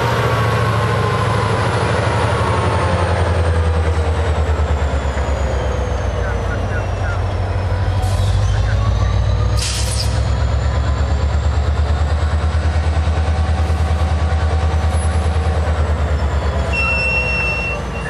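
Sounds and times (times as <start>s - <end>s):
diesel locomotives throbbing: 0.0s - 18.0s
high-pitched squeal: 15.9s - 18.0s.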